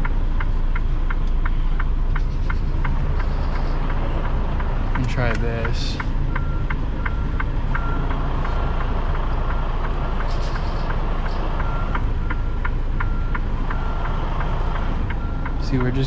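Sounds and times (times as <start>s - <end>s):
diesel truck engine running: 0.0s - 16.0s
reverse alarm beeping: 5.8s - 8.2s, 10.6s - 14.2s.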